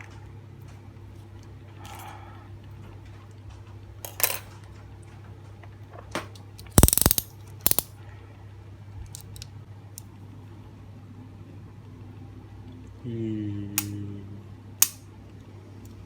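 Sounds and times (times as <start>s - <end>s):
metal tong clicking and rattling: 6.6s - 7.9s.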